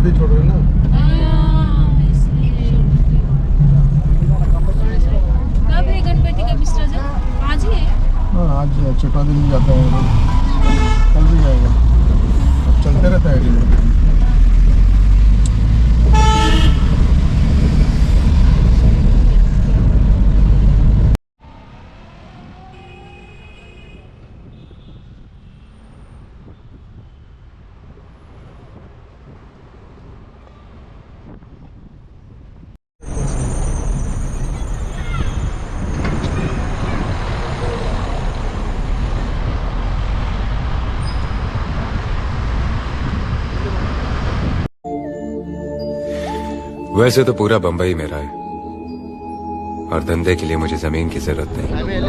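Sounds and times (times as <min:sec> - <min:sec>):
road traffic rumble: 0:00.0 - 0:44.7
vehicle horn honking: 0:09.9 - 0:11.6, 0:16.1 - 0:17.0, 0:22.7 - 0:25.8.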